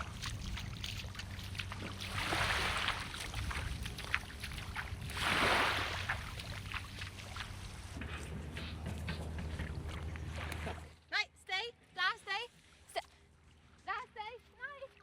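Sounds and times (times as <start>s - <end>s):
small waves washing in: 0.0s - 8.0s.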